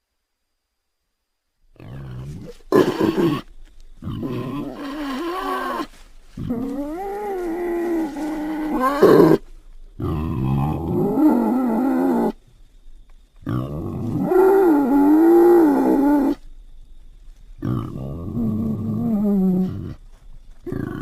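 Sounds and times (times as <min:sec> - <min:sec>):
wild boar calling: 0:01.8 - 0:12.4, 0:13.4 - 0:16.5, 0:17.6 - 0:20.0, 0:20.6 - 0:21.0.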